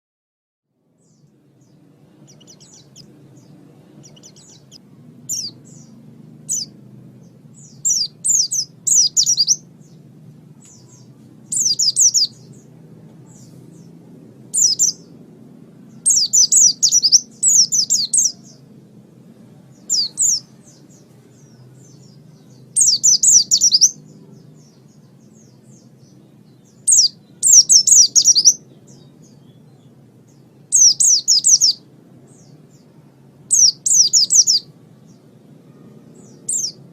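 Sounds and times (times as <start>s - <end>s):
faint low hum: 0.7s - 36.9s
bird chirping high falling chirps: 1.0s - 10.0s, 10.6s - 12.7s, 14.5s - 15.1s, 15.9s - 18.6s, 19.7s - 24.0s, 25.4s - 29.8s, 30.7s - 32.5s, 33.5s - 34.7s, 35.7s - 36.8s.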